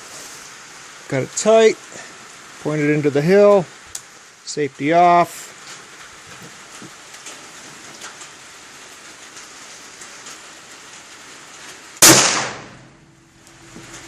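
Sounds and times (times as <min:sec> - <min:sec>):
rifle shot: 0:12.0 - 0:13.0.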